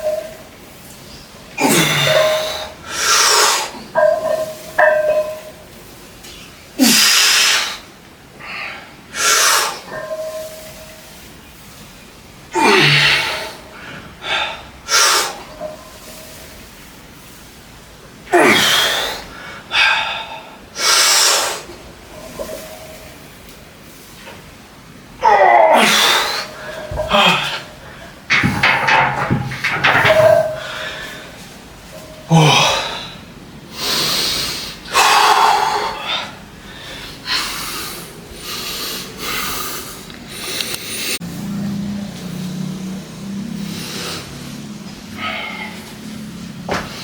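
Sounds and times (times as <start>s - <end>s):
person grunting: 27.0s - 27.7s, 32.3s - 33.0s.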